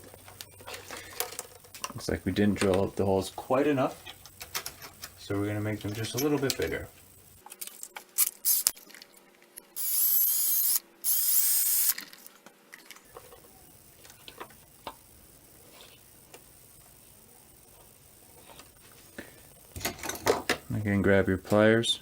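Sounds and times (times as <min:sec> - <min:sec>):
small power drill whine: 0:09.8 - 0:12.0.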